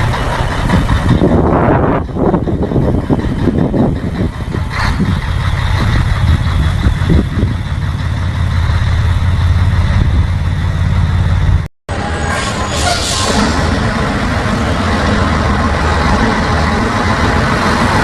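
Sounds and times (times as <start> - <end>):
truck diesel engine rumbling: 0.0 - 18.0
hissing rush: 2.0 - 18.0.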